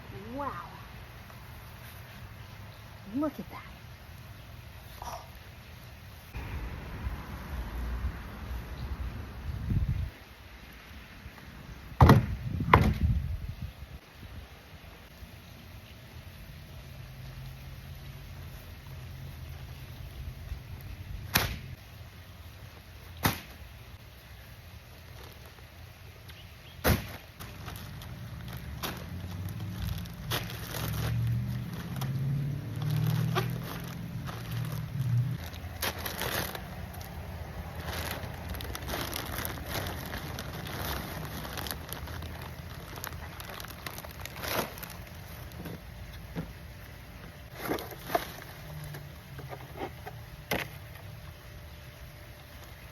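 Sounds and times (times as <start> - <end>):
soil and plants rustling: 0.0 - 52.9
low steady rumble: 27.6 - 52.9.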